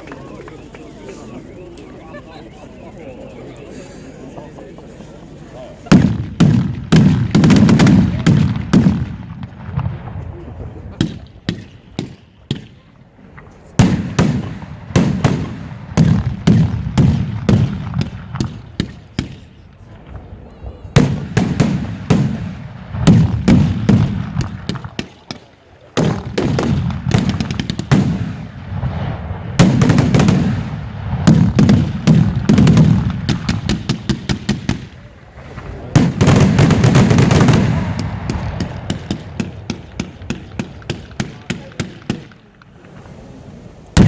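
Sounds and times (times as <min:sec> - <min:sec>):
fireworks shells bursting: 0:21.0 - 0:42.9.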